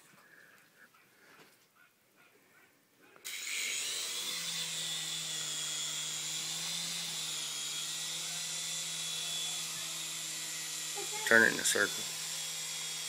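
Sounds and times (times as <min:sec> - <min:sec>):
toy helicopter motor whine: 0:03.2 - 0:13.0.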